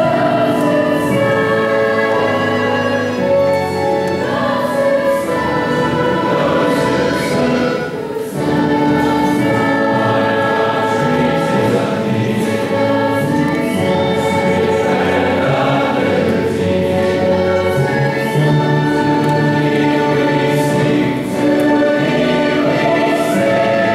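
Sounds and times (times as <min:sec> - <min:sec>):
choir singing held notes: 0:00.0 - 0:23.9.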